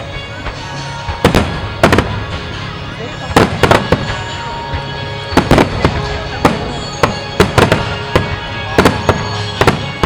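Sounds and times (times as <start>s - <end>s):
music playing: 0.0s - 10.0s
fireworks bursting with echo: 0.4s - 10.0s.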